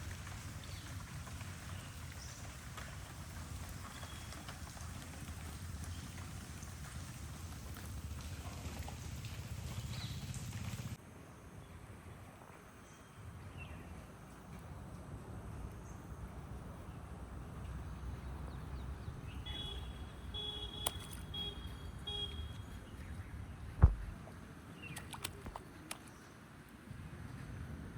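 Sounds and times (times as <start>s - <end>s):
low outdoor rumble: 0.0s - 11.0s, 13.2s - 24.6s
rain hiss: 0.0s - 11.0s.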